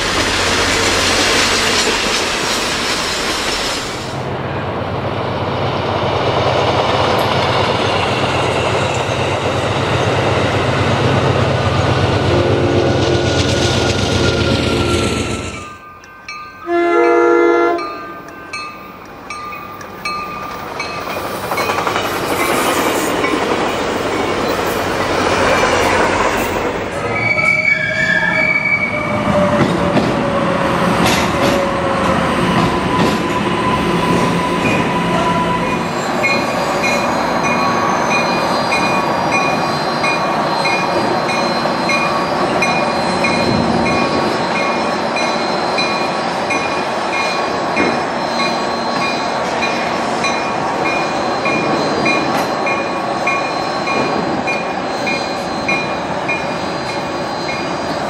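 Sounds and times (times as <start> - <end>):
train running noise: 0.0 - 58.0
train horn: 12.2 - 13.3, 16.6 - 18.3, 33.0 - 35.9
bell dinging: 15.6 - 17.2.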